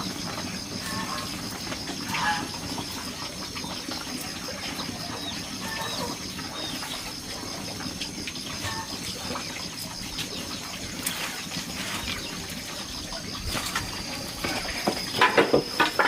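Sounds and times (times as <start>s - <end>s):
farmyard birds chirping: 0.0s - 16.0s.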